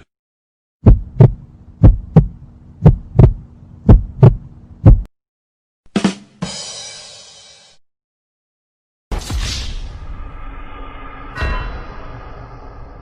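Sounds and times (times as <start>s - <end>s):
heartbeat thumps: 0.8s - 5.1s.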